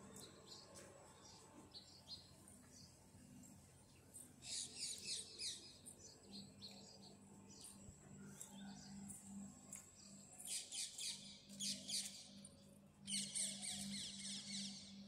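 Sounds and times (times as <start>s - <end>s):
small birds chirping: 0.0s - 9.2s.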